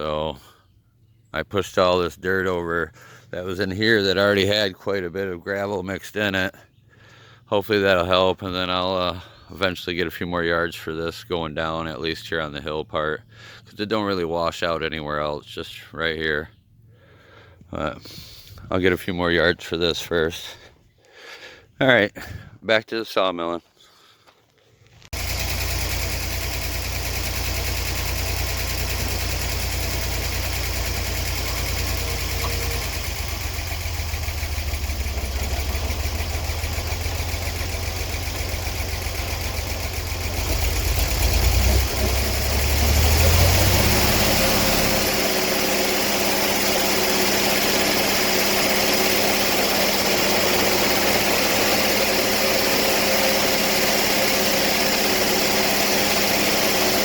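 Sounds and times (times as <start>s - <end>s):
engine idling and revving: 25.1s - 57.0s.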